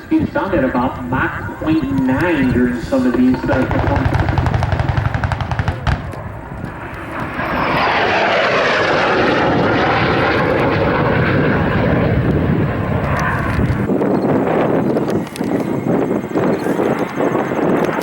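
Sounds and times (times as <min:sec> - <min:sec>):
jet fighter passing: 0:00.0 - 0:18.0.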